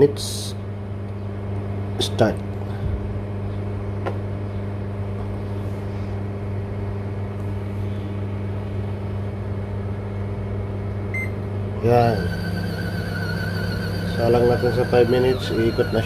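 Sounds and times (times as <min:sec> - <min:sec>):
washing machine motor humming: 0:11.1 - 0:16.0.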